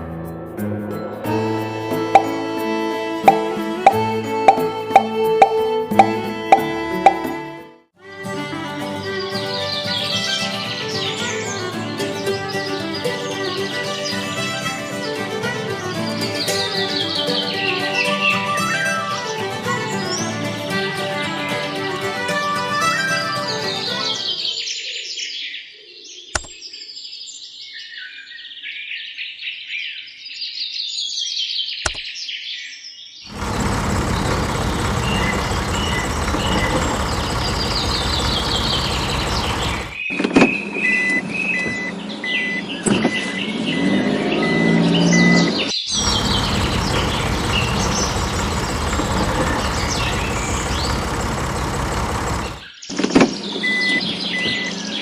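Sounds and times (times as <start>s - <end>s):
birds chirping: 1.4s - 7.4s, 33.3s - 55.0s
vehicle-like rumble: 33.3s - 40.0s, 44.4s - 52.7s
short beeps: 40.9s - 45.5s.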